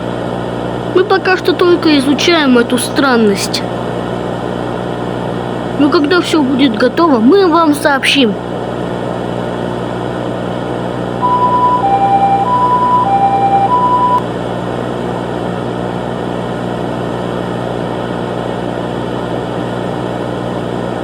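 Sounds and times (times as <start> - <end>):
steady noisy hum: 0.0 - 14.2
two-tone emergency siren: 11.2 - 14.2.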